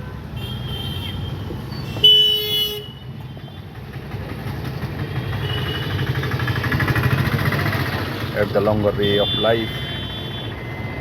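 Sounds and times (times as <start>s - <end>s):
road traffic engine rumble: 0.0s - 11.0s.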